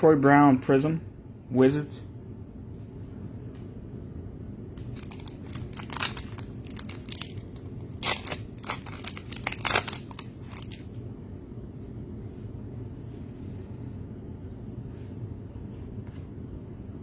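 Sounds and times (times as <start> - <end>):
steady low hum: 0.0 - 17.0
card packaging crinkling and snapping: 4.8 - 11.0.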